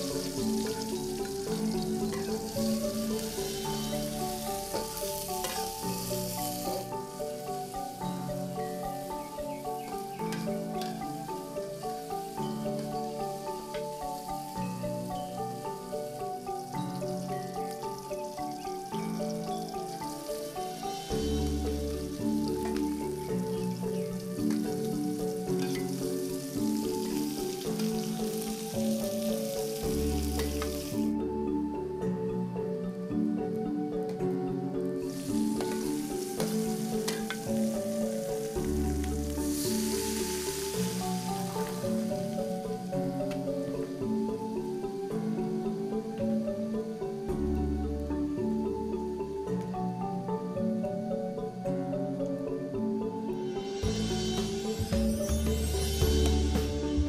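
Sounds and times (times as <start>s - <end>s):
food sizzling in a wok: 0.0s - 31.2s, 35.0s - 48.9s, 53.4s - 57.0s
light background music: 0.0s - 57.0s
metal spatula scraping and tapping: 4.8s - 5.8s, 36.4s - 37.4s.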